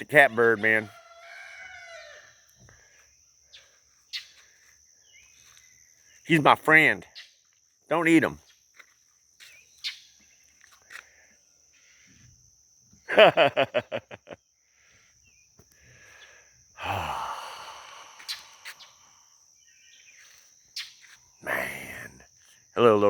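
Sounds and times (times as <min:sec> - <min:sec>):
high-pitched insect drone: 0:13.1 - 0:23.0
breathy sigh-like noise: 0:15.8 - 0:19.4.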